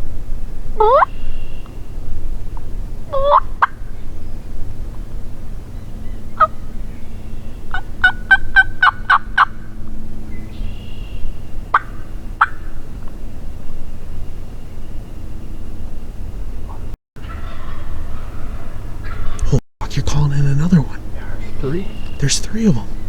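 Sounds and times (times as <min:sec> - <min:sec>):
turkey yelping: 0:00.8 - 0:01.5, 0:03.1 - 0:03.8, 0:06.4 - 0:06.7, 0:07.3 - 0:09.6, 0:10.6 - 0:12.8, 0:16.7 - 0:19.5.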